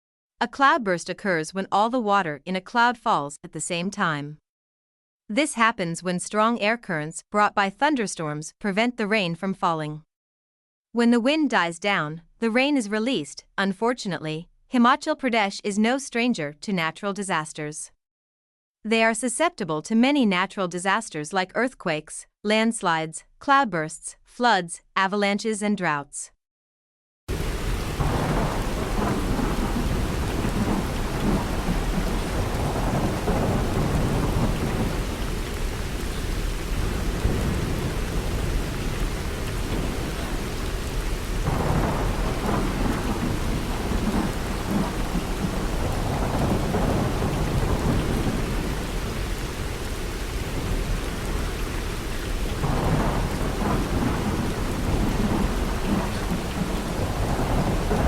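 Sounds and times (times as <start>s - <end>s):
heavy rain falling: 27.3s - 58.0s
rolling thunder: 27.3s - 58.0s.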